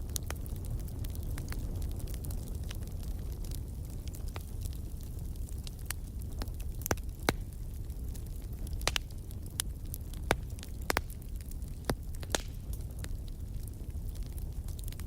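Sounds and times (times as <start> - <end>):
fire crackling and popping: 0.0 - 15.0
low rumble of flames: 0.0 - 15.0.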